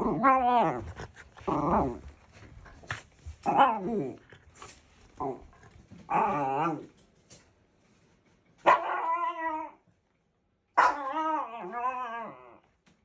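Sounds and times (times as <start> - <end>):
dog howling: 10.8 - 12.7.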